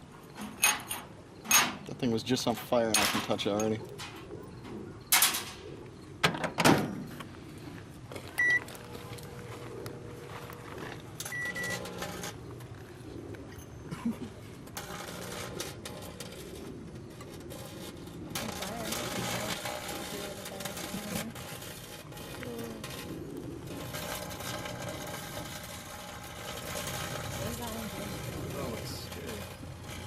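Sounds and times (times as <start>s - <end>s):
microwave humming: 8.2s - 30.0s
microwave keypad beeping: 8.4s - 8.7s, 11.3s - 12.0s.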